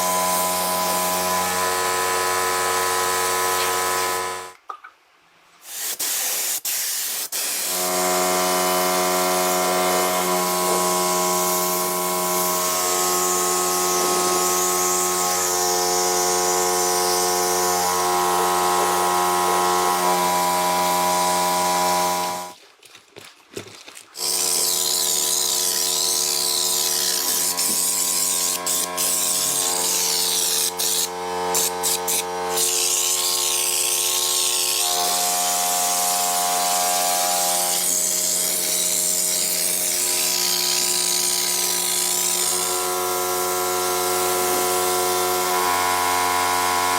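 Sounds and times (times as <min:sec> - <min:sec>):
power tool motor running: 0:00.0 - 0:04.5, 0:07.7 - 0:22.6, 0:24.2 - 0:46.9.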